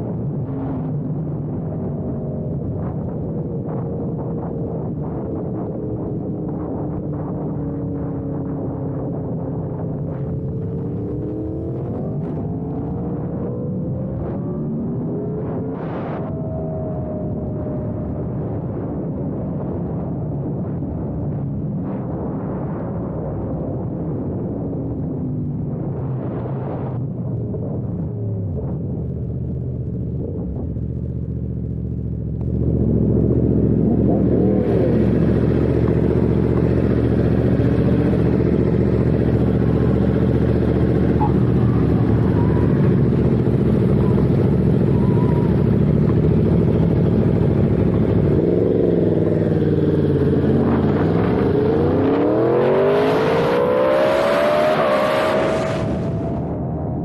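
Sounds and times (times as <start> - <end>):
motorcycle engine running: 30.8 - 57.0.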